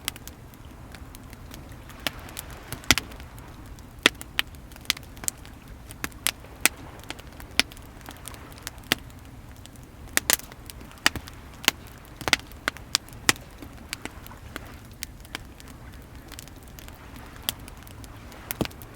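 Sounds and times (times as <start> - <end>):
wood fire crackling and popping: 0.0 - 18.9.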